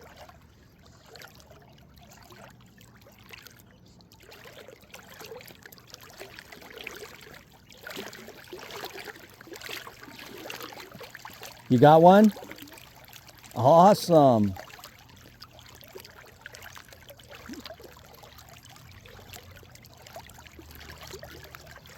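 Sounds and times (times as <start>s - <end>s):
water lapping against boat hull: 0.0s - 13.6s, 14.2s - 21.9s.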